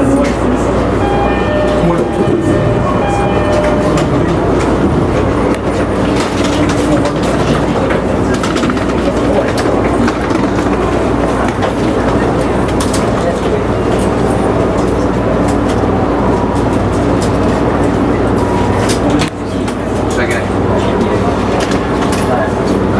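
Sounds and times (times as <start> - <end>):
electric train running on track: 0.0 - 22.9
steady tones: 0.4 - 6.6.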